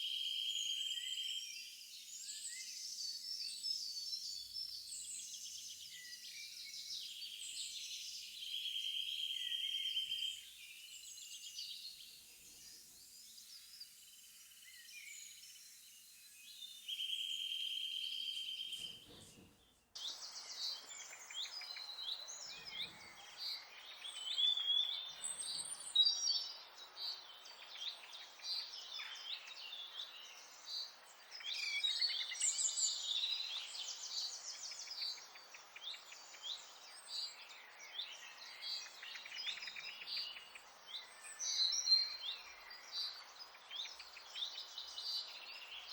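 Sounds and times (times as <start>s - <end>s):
songbirds chirping and trilling: 0.0s - 45.9s
faint hiss: 10.6s - 18.0s.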